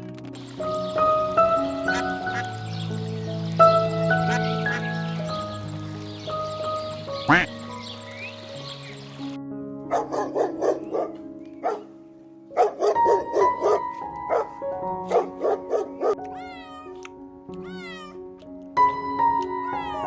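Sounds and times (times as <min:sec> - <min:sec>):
soft background music: 0:00.0 - 0:20.0
animal calls: 0:00.4 - 0:09.4.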